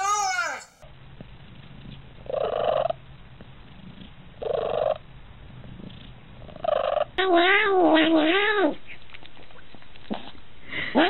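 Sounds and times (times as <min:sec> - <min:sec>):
cat purring: 0:02.2 - 0:03.0, 0:03.6 - 0:10.4.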